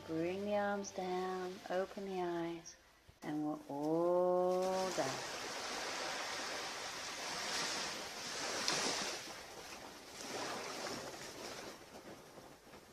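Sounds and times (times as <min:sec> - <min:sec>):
waves breaking on a beach: 0:04.6 - 0:12.5.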